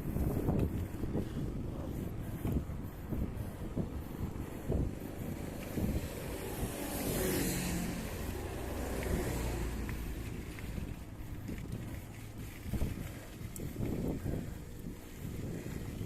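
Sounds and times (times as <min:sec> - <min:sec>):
wind rumble on microphone: 0:00.0 - 0:16.0
vehicle passing by: 0:03.7 - 0:13.4.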